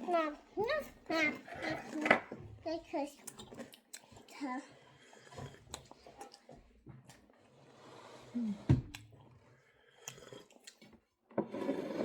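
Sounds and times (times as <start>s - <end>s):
people chewing: 3.2s - 11.0s.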